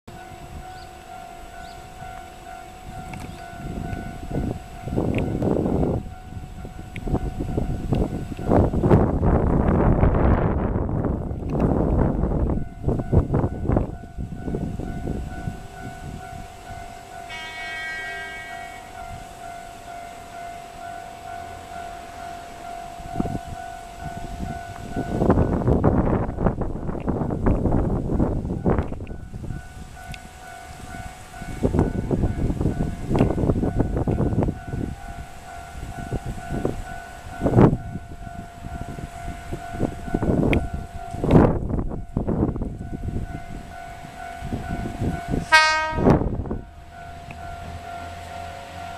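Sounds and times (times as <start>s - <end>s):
long steady tone: 12.1s - 26.6s, 27.8s - 48.9s
train horn blast: 17.2s - 19.4s, 45.3s - 48.9s.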